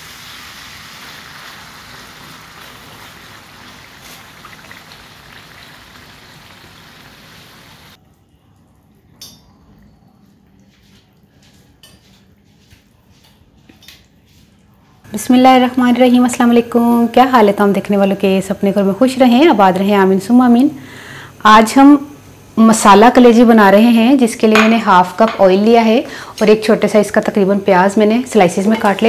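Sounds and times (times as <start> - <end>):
liver frying sizzle: 0.0 - 8.0, 15.1 - 29.0.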